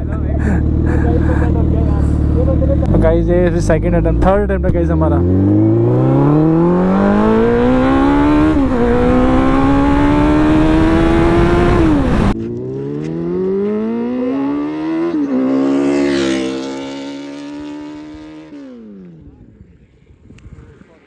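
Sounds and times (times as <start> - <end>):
motorcycle engine accelerating: 0.0 - 20.8
wind rush on microphone: 6.8 - 12.4, 19.2 - 21.0.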